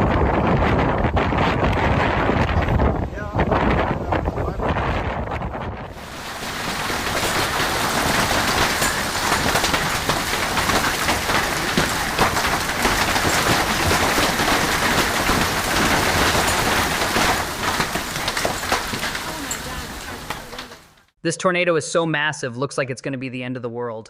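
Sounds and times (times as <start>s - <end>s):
heavy rain: 5.9s - 21.0s.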